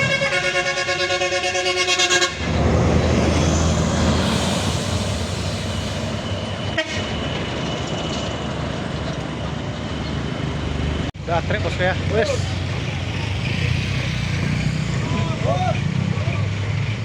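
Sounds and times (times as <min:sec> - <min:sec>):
truck air horn: 0:00.0 - 0:02.6, 0:06.7 - 0:07.1
diesel truck engine running: 0:00.0 - 0:07.4, 0:08.4 - 0:17.0.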